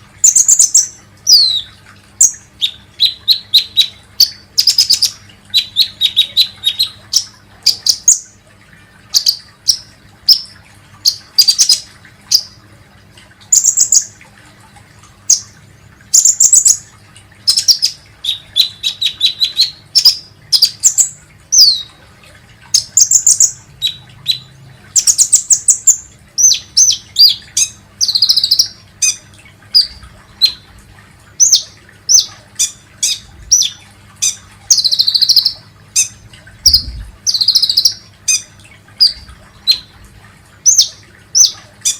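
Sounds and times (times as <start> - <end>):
sunbird high chirps and trills: 0.2 - 8.2, 13.5 - 14.1.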